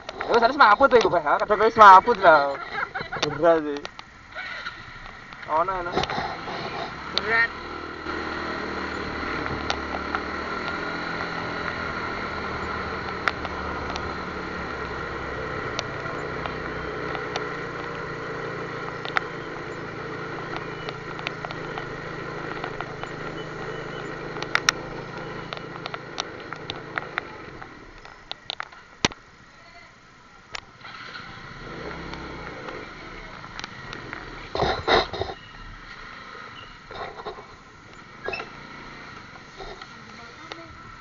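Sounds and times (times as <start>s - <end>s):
vehicle engine idling: 0.0s - 41.0s
sharp clicks: 3.1s - 29.2s, 30.5s - 35.4s.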